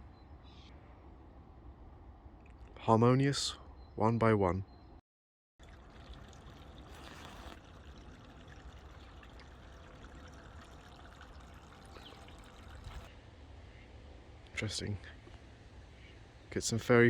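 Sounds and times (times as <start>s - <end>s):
stream running water: 5.6s - 13.1s.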